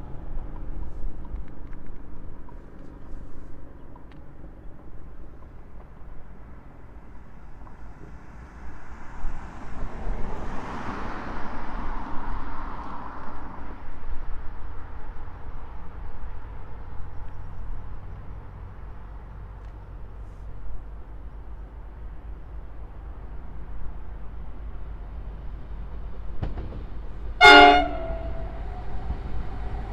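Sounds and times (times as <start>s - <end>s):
freight train passing: 22.0s - 29.9s.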